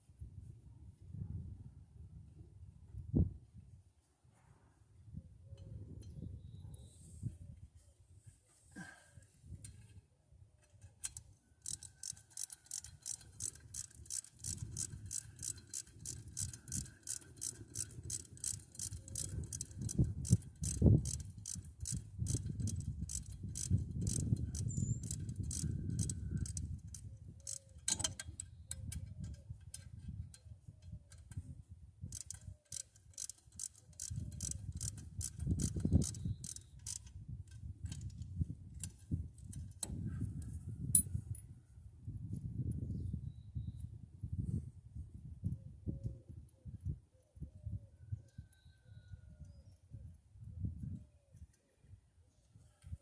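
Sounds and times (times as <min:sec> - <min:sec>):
ratchet wrench clicking: 0:11.0 - 0:30.4, 0:32.1 - 0:37.2.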